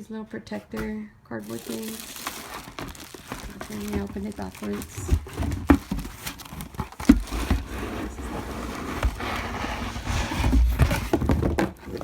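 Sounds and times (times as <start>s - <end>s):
cardboard scraping and rubbing: 0.5s - 12.0s
handling knocks: 0.7s - 7.7s.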